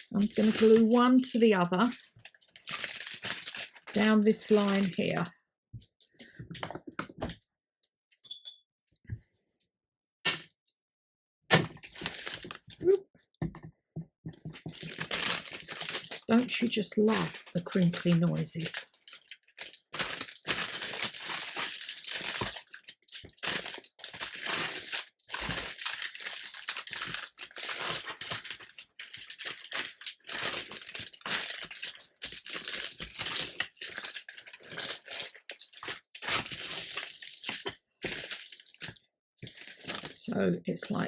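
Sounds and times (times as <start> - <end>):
parchment paper crinkling: 0.0 - 5.3, 11.8 - 12.8, 14.4 - 40.3.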